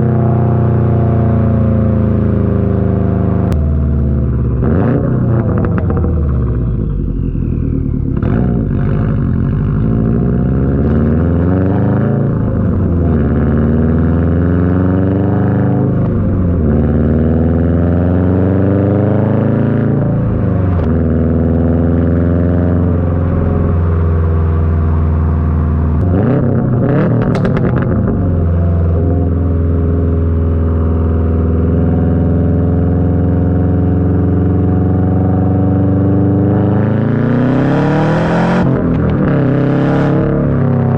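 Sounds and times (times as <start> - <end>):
car engine accelerating: 0.0 - 40.9
sharp exhaust pops: 5.3 - 8.9, 26.0 - 29.4.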